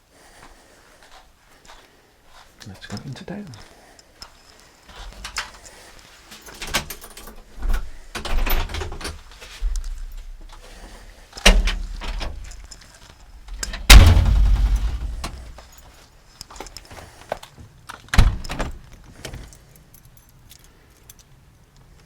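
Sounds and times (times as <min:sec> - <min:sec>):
door opening and shutting: 0:06.5 - 0:09.9, 0:11.4 - 0:12.6, 0:13.4 - 0:15.6, 0:18.2 - 0:18.8
loud thud: 0:13.5 - 0:15.6.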